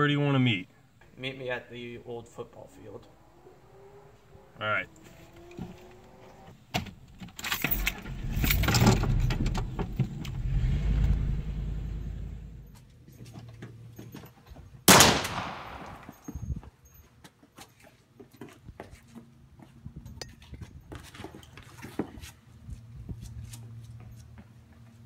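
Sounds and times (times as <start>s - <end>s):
road noise: 0.0s - 16.6s, 21.0s - 25.0s
vehicle engine rumble accelerating: 1.7s - 14.2s.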